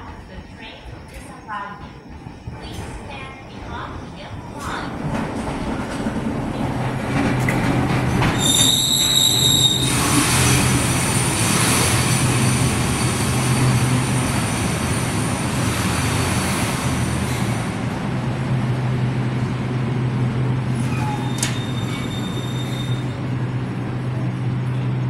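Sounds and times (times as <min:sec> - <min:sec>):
electric train rumble and hum: 0:00.0 - 0:25.0
train wheels squealing: 0:08.3 - 0:17.5, 0:20.8 - 0:23.2.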